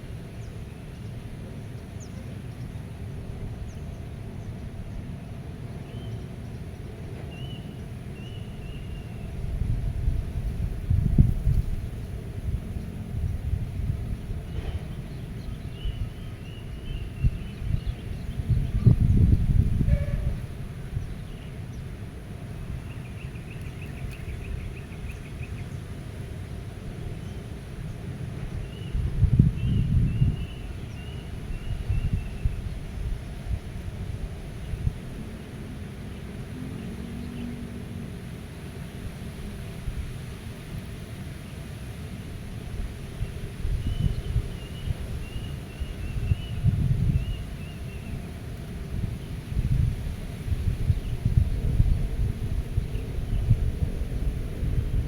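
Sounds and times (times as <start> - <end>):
wind blowing: 9.3 - 23.3, 42.3 - 55.0.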